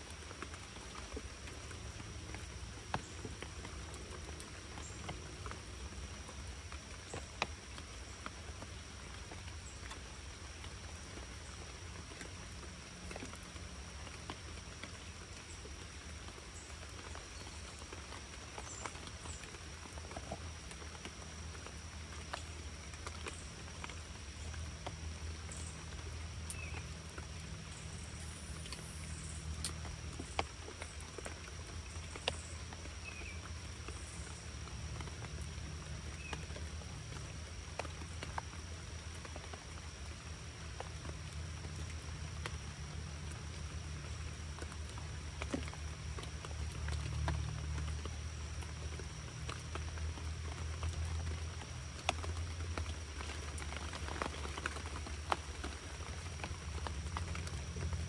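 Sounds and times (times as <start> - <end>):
rain pattering: 0.0 - 58.0.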